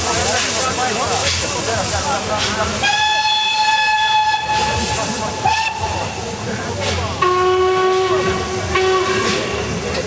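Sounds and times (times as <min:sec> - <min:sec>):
steam hissing: 0:00.0 - 0:10.0
lower-pitched steam whistle: 0:02.8 - 0:06.0
high steam whistle: 0:02.8 - 0:06.1.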